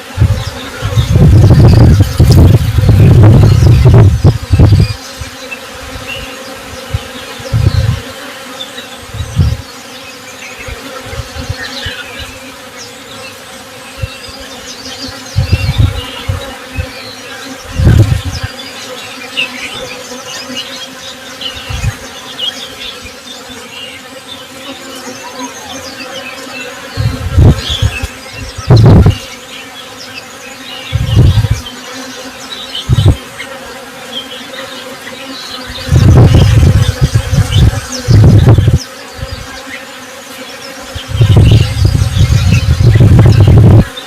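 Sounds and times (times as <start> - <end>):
bees buzzing: 0.0 - 44.0
faint bird chirps: 23.8 - 31.8.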